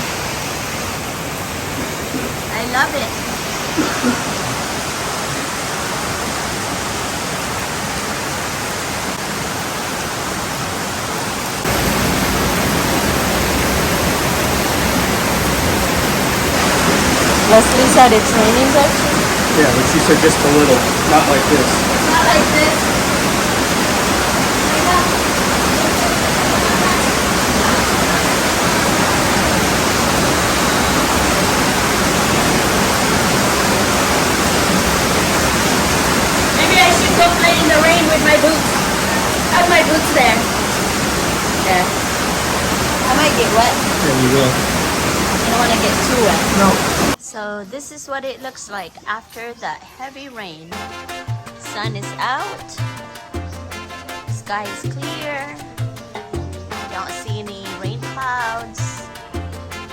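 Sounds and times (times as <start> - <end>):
heavy rain pouring: 0.0 - 47.2.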